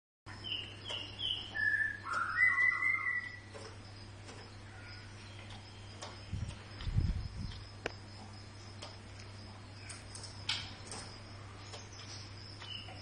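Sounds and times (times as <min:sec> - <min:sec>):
bird whistled calls: 0:00.5 - 0:03.5.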